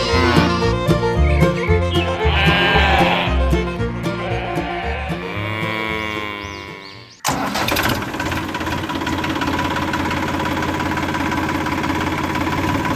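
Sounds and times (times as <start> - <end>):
small tractor motor running: 0.0 - 4.4, 7.2 - 12.9
music: 0.0 - 7.2.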